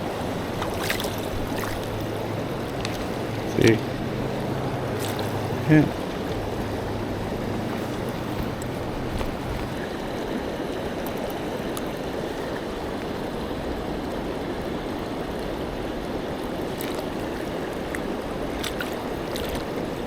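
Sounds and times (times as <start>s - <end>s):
river water rushing: 0.0s - 20.0s
faint ticks: 0.5s - 9.8s.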